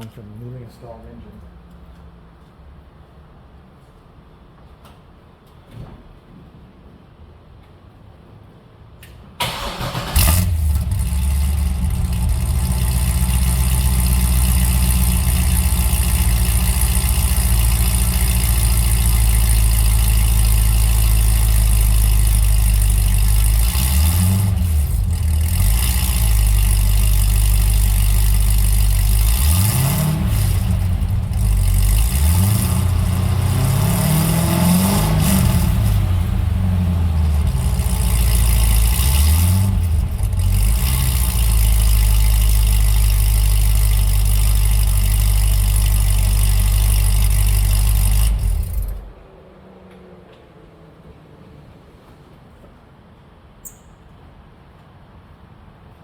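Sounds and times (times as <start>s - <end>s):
engine exhaust idling and revving: 9.6s - 49.7s.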